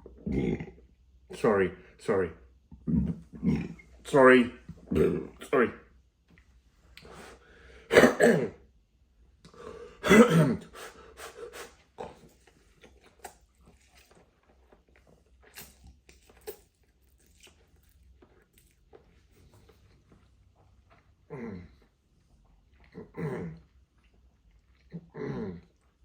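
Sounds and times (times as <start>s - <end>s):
man coughing: 7.9s - 8.6s, 10.0s - 10.7s.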